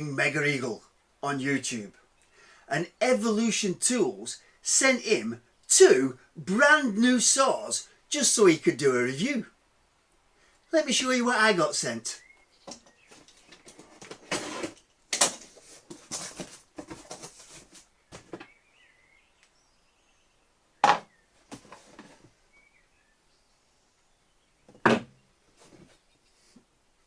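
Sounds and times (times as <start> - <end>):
cardboard rustling and tearing: 13.2 - 18.4.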